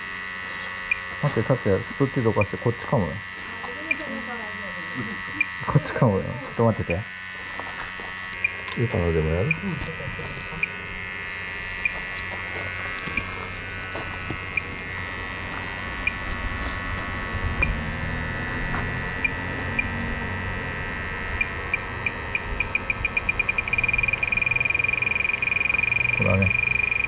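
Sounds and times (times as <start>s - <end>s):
electronic detector buzzing: 0.0s - 27.0s
short high beeps: 22.3s - 27.0s.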